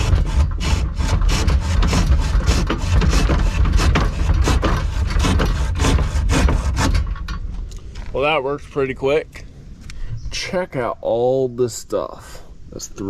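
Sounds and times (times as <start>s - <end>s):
handsaw cutting wood: 0.0s - 7.1s.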